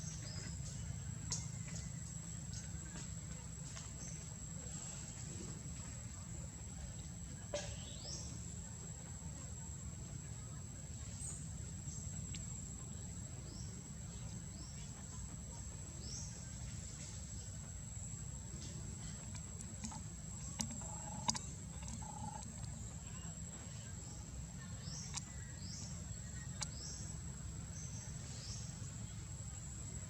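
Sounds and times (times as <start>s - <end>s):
insect drone: 19.8s - 25.0s.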